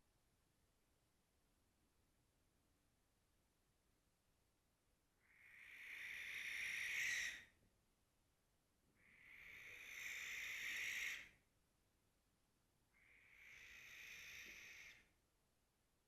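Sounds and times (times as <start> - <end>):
barn owl screeching: 5.2 - 7.5, 9.0 - 11.3, 13.0 - 15.0.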